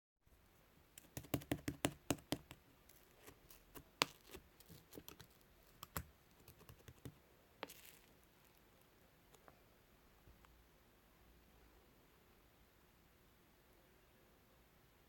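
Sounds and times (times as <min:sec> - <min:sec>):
squishy rustle: 0:07.6 - 0:08.9.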